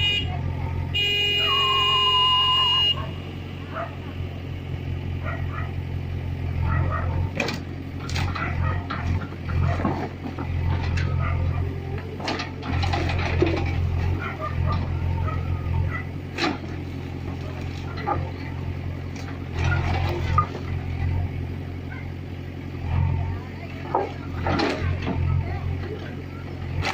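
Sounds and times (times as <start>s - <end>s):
vehicle horn: 0.0s - 3.7s
tractor diesel engine droning: 0.0s - 26.9s
knocks and clatter: 7.3s - 11.2s, 12.1s - 14.9s.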